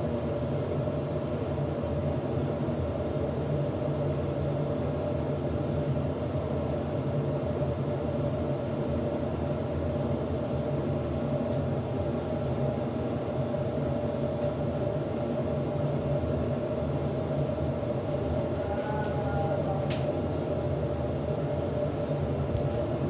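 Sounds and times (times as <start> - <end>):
tumble dryer drone: 14.9 - 23.0.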